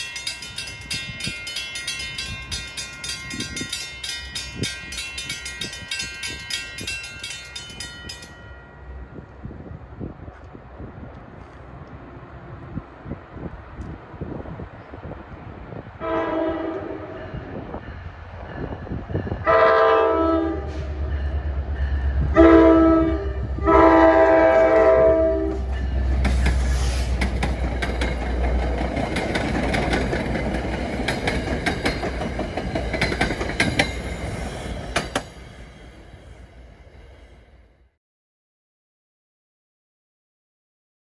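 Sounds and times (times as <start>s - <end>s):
locomotive rumbling past: 0.0s - 37.7s
multi-tone train air horn: 16.0s - 17.2s, 19.5s - 21.0s, 22.3s - 25.7s.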